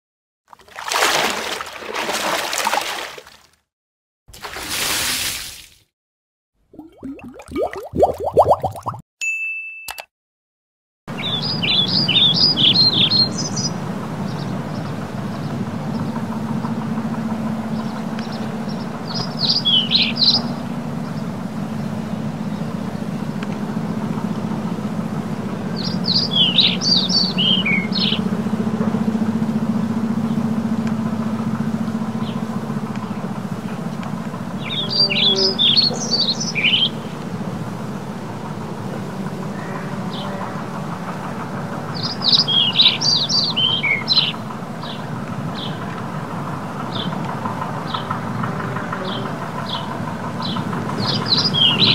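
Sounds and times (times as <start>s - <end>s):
birds chirping: 11.1s - 16.2s, 17.7s - 22.8s, 25.8s - 28.3s, 34.5s - 37.2s, 41.9s - 46.0s, 49.0s - 51.9s.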